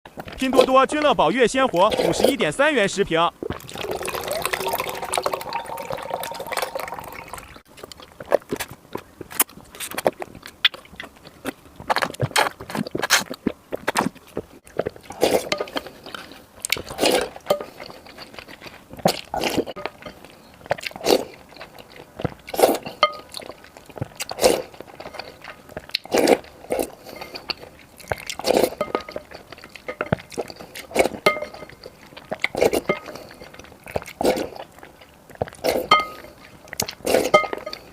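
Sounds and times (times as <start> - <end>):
eating porridge with slurps: 3.5 - 7.6, 14.7 - 37.9.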